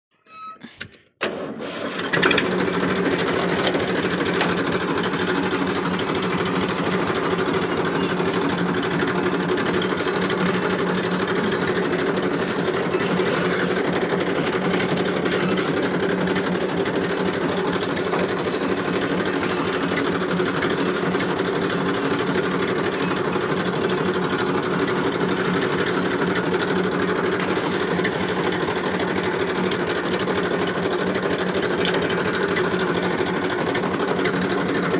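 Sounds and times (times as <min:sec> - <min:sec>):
tractor diesel engine running: 0:00.4 - 0:34.9.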